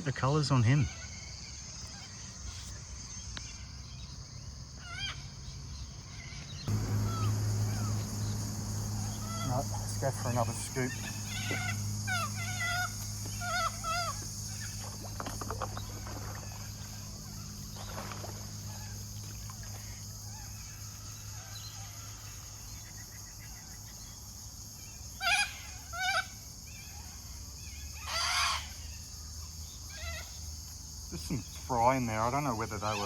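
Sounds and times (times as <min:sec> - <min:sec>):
birds calling: 0:00.0 - 0:24.2, 0:31.2 - 0:33.0
high-pitched insect drone: 0:06.6 - 0:33.0.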